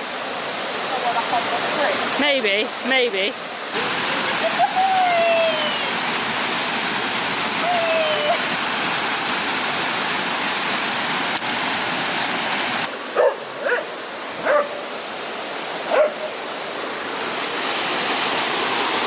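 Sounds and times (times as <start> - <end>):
waterfall rushing: 0.0 - 19.0
dog barking: 13.2 - 14.8, 15.9 - 16.3.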